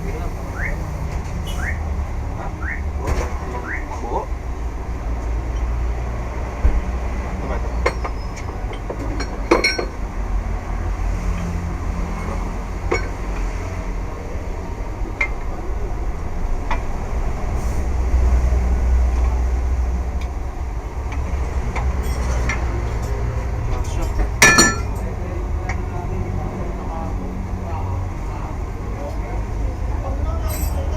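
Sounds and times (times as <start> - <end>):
tools and steel parts clanking: 7.8 - 10.0, 12.9 - 13.5, 21.7 - 25.1, 30.4 - 30.9
ringing clank: 24.4 - 25.0.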